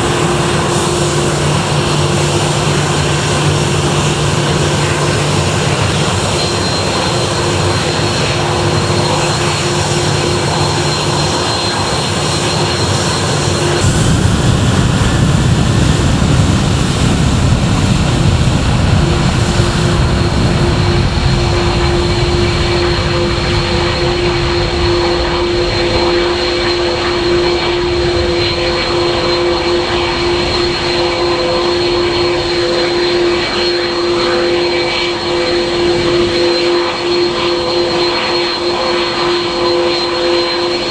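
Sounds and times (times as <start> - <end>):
deep engine rumble: 0.0 - 29.3
airliner engines whining: 0.0 - 40.9.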